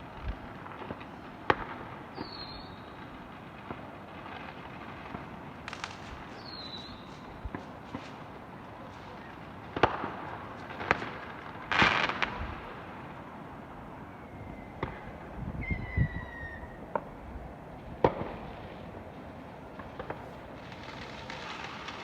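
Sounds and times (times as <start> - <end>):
firework bangs: 0.0 - 13.8, 14.6 - 22.0
firework crackling burst: 0.0 - 15.4, 16.3 - 22.0
firework falling whistle: 2.1 - 3.1, 5.7 - 7.6, 14.0 - 17.1.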